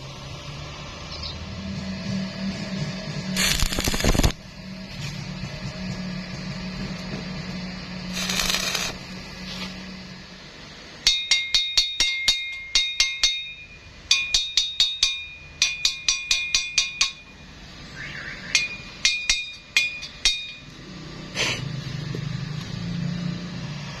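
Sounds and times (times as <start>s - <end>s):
short hiss: 3.4s - 4.3s, 8.1s - 9.8s
hammer striking steel: 11.0s - 17.4s, 18.6s - 20.7s.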